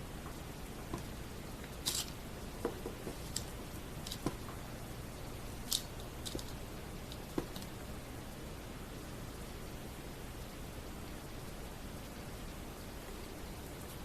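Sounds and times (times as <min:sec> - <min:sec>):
steady hiss: 0:00.0 - 0:14.0
small clicks and scrapes on wood: 0:00.8 - 0:04.5.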